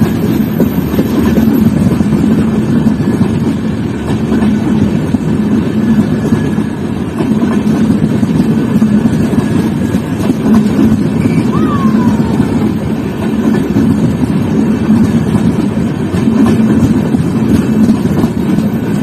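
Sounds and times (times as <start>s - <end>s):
train wheels running on rails: 0.0s - 19.0s.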